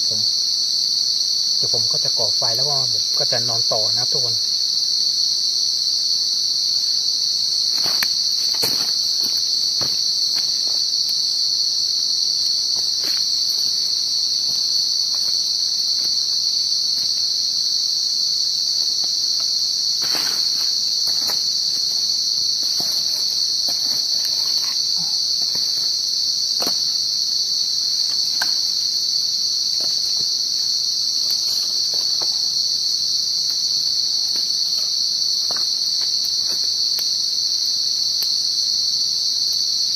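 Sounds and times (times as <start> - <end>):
crickets trilling: 0.0 - 39.9
faint ticks and snaps: 35.5 - 38.4.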